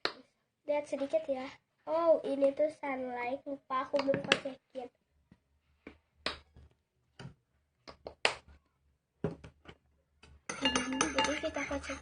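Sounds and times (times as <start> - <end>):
containers clicking and tapping: 9.3 - 12.0.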